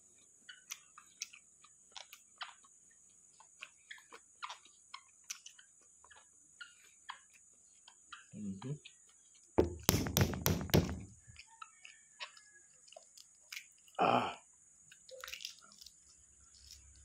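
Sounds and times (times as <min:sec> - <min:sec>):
mouth chewing wetly: 0:00.2 - 0:09.6, 0:11.2 - 0:14.0.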